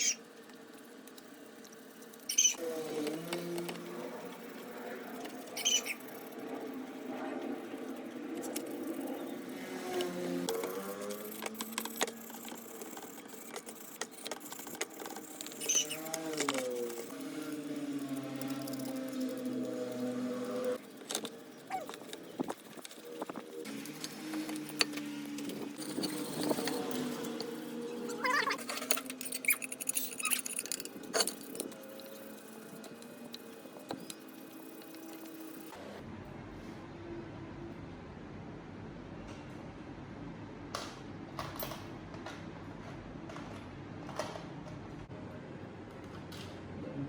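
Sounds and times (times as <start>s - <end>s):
small metal parts clinking: 25.4s - 35.7s.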